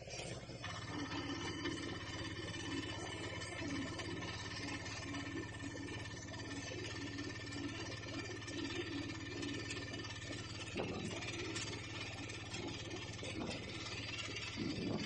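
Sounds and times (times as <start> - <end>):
auto rickshaw engine running: 0.0 - 15.0
vehicle body rattling: 1.6 - 15.0.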